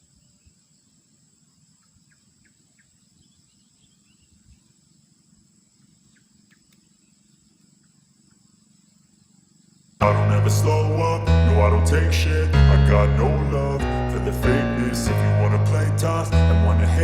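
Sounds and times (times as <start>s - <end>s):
low rumble: 10.0s - 17.0s.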